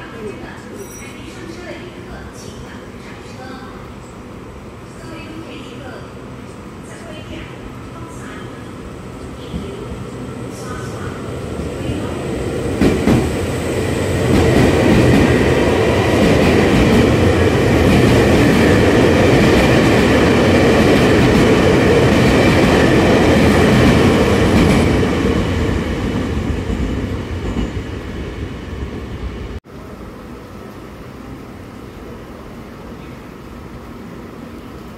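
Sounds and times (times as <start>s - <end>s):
train rumbling on rails: 0.0s - 34.9s
faint high ringing: 0.7s - 1.3s.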